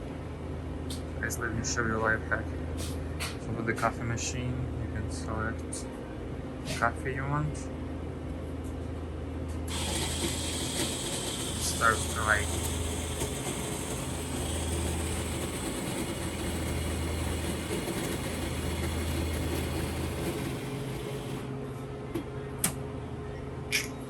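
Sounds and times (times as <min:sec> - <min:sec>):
coffee machine humming: 0:09.5 - 0:22.8.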